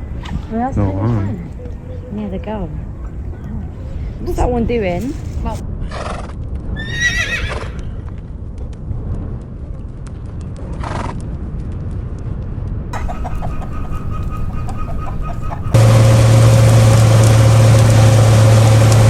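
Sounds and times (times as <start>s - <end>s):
horse whinnying: 6.8s - 7.9s
steady low rumble: 15.4s - 19.0s
light ticking: 15.8s - 19.0s.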